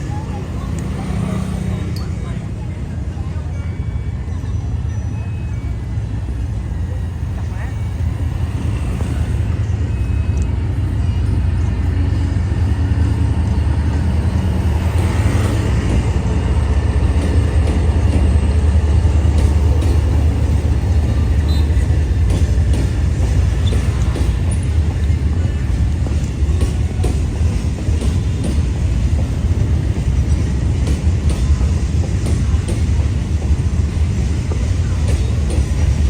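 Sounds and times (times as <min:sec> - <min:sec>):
freight train rumbling by: 0:00.0 - 0:36.0.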